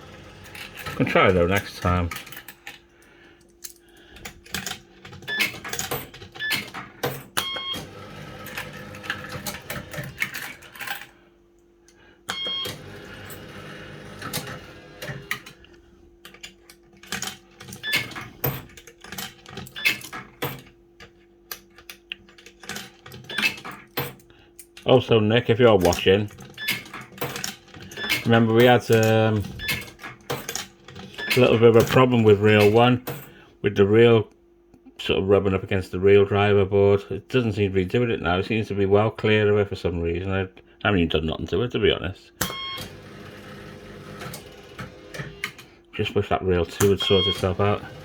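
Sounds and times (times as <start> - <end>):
steady electrical hum: 0.0 - 48.0
reels whirring: 46.8 - 48.0.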